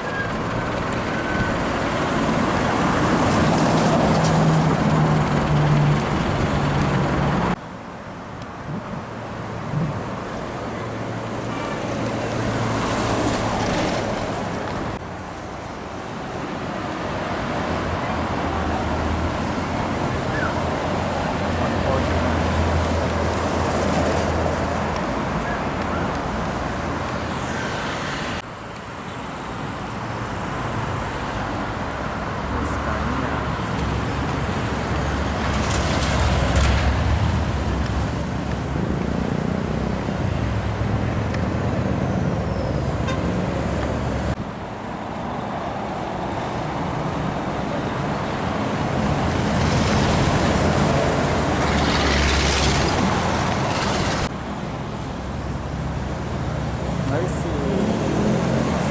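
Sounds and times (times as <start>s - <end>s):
engine hum and tyre noise: 0.0s - 58.9s
heavy trucks passing: 0.0s - 58.9s.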